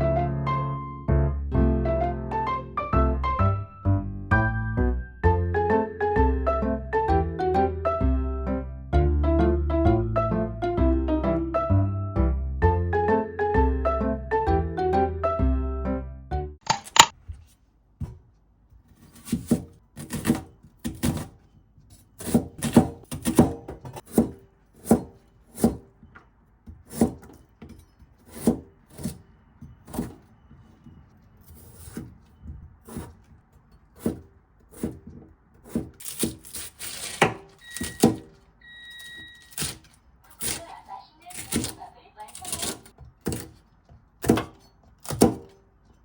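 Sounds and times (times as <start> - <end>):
soft background music: 0.0 - 16.6.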